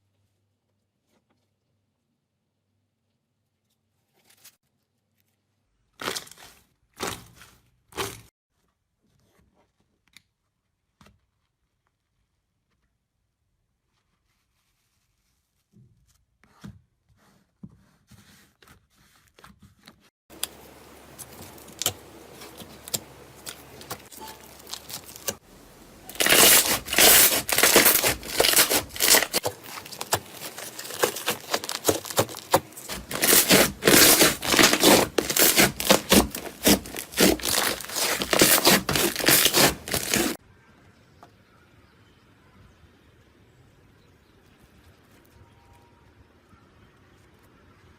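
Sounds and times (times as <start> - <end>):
hands squishing slime: 26.1 - 40.4.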